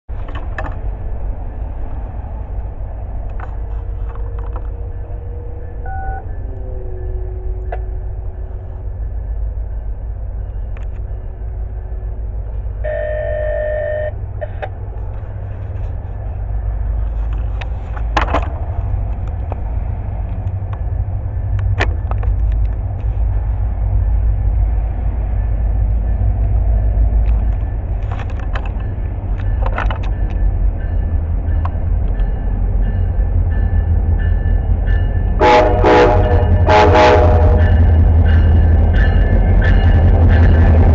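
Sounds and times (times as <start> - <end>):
train rumbling: 0.1 - 40.9
train horn toot: 5.8 - 7.5, 12.8 - 14.2, 35.4 - 38.0.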